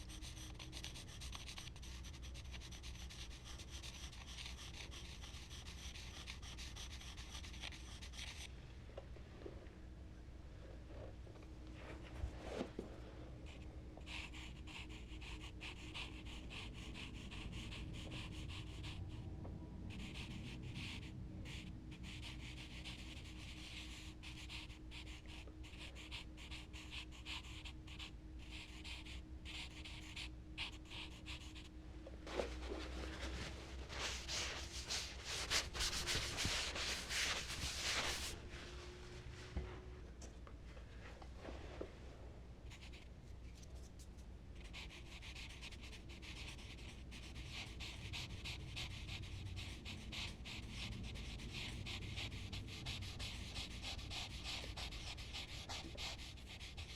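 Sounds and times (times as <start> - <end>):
charcoal scratching on paper: 0.0 - 8.5, 20.0 - 31.7, 32.4 - 38.4, 42.7 - 56.9
faint steady hum: 0.0 - 56.9.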